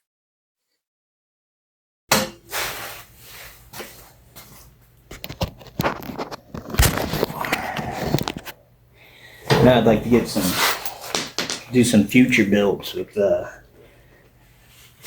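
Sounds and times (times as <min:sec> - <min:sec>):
knocks and clatter: 0:11.1 - 0:11.8.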